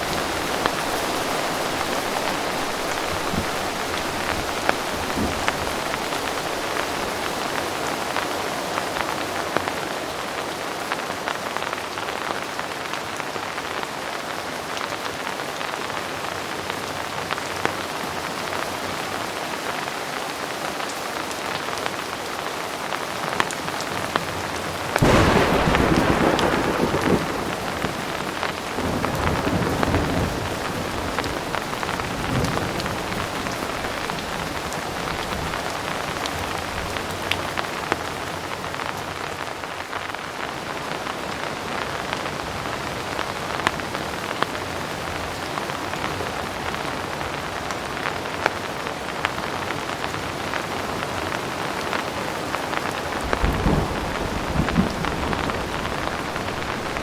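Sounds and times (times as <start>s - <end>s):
distant thunder rumbles: 0.0s - 7.6s, 25.0s - 37.1s, 53.2s - 57.0s
heavy rain: 0.0s - 57.0s.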